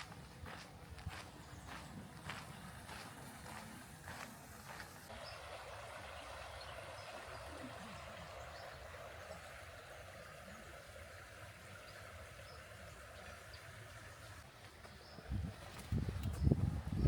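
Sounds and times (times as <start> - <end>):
footsteps: 0.0 - 5.1
faint outdoor ambient noise: 0.0 - 17.0.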